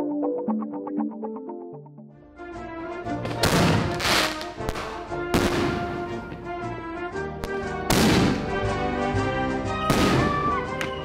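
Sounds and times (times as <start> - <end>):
background music: 0.0 - 11.0
firework shells bursting: 3.2 - 6.6, 7.4 - 8.6.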